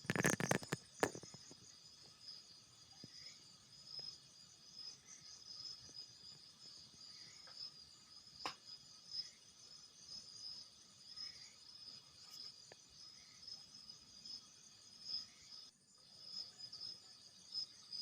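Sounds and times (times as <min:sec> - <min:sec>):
night insects chirring: 0:00.0 - 0:18.0.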